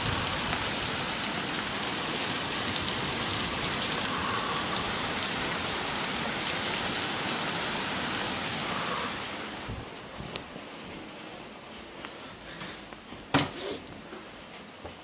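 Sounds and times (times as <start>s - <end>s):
heavy rain and hail: 0.0s - 11.3s.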